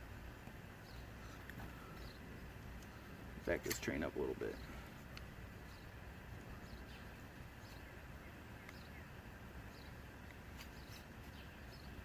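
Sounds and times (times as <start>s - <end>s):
background hum: 0.0s - 12.0s
faint bird chirps: 0.7s - 3.2s, 5.6s - 12.0s.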